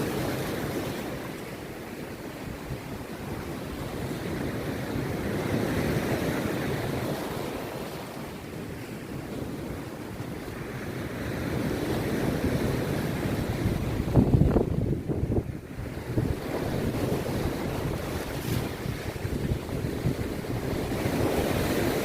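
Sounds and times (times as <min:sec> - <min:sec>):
surf breaking on beach: 0:00.0 - 0:22.0
wind buffeting microphone: 0:09.0 - 0:22.0.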